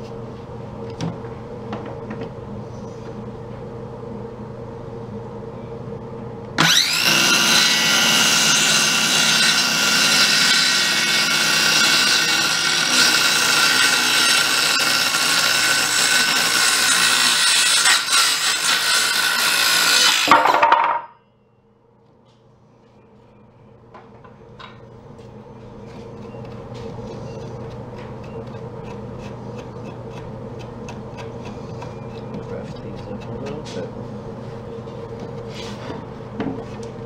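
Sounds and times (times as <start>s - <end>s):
power saw cutting wood: 6.6s - 21.0s.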